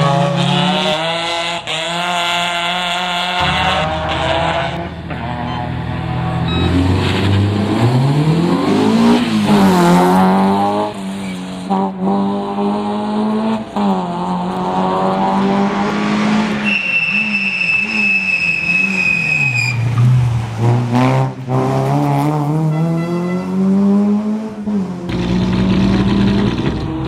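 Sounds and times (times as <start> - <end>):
rally car engine accelerating: 0.0 - 19.2, 19.9 - 27.0
high steady squeal: 16.6 - 19.9.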